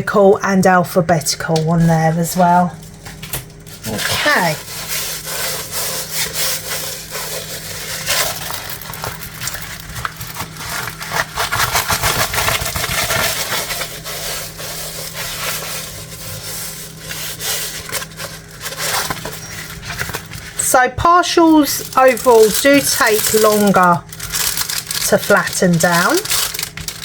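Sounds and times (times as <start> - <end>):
hands rubbing canvas: 4.2 - 9.6, 10.4 - 20.6.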